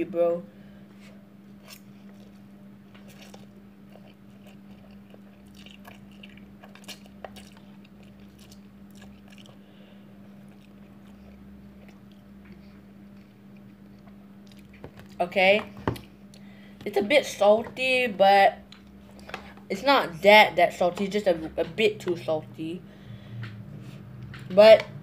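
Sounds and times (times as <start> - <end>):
steady low hum: 0.0 - 25.0
faint chewing of noodles: 1.0 - 15.2.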